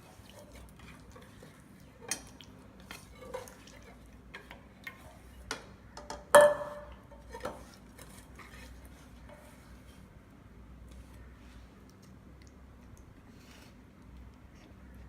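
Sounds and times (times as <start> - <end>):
dishes clicking and tapping: 5.4 - 7.6
dishes clattering: 6.2 - 7.6.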